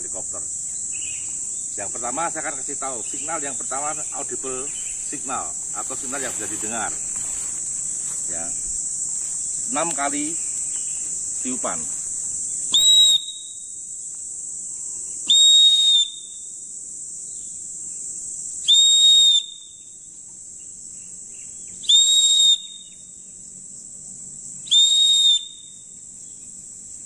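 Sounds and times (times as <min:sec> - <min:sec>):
whistle blasts: 0:12.7 - 0:13.7, 0:15.3 - 0:16.4, 0:18.6 - 0:19.8, 0:21.8 - 0:23.0, 0:24.7 - 0:25.8.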